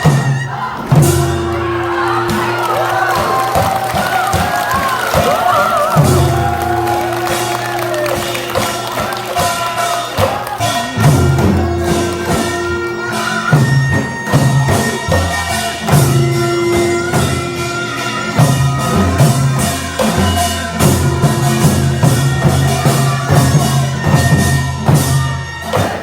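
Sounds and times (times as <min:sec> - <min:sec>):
held notes bending in pitch: 0:00.0 - 0:18.3
gongs and drums beating: 0:00.0 - 0:26.0.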